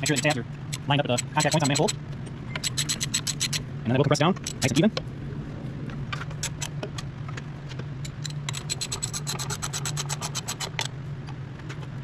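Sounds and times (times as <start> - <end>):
ratchet wrench clicking: 0.0 - 3.6, 4.4 - 4.8, 8.0 - 10.9
low hum: 0.0 - 12.0.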